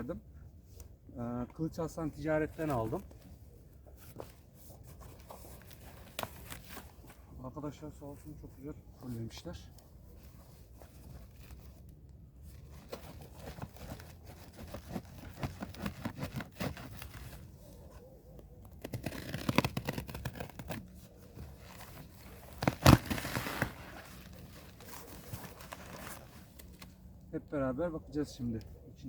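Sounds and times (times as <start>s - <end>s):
packaging rustling and scraping: 2.3s - 7.4s, 10.0s - 27.2s
tape and cardboard tearing: 12.8s - 17.4s, 18.6s - 26.9s.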